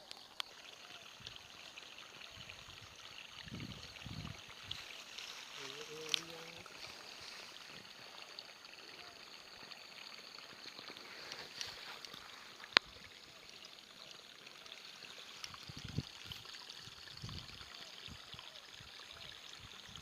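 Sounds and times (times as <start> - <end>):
small stream running: 0.0 - 20.0.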